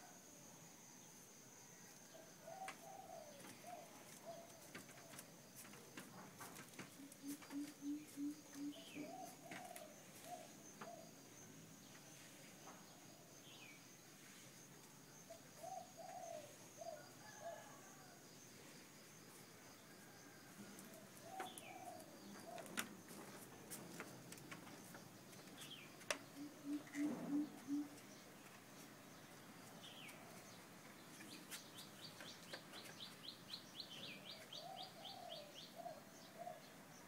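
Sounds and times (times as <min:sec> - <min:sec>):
birds calling: 0:06.8 - 0:11.0, 0:20.9 - 0:23.0
low cooing notes: 0:26.4 - 0:28.0.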